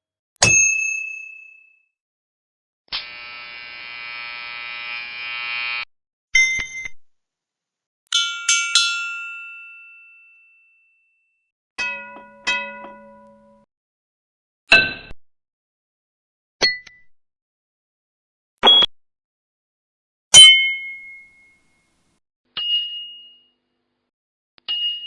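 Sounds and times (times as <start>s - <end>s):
electric buzz: 3.0s - 5.9s
ringing struck metallic tones: 20.4s - 21.9s.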